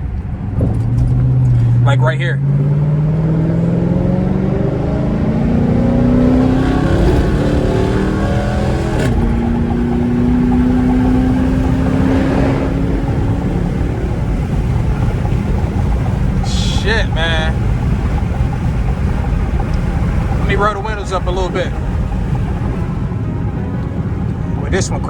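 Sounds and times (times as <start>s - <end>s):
v eight car accelerating: 0.0s - 25.0s.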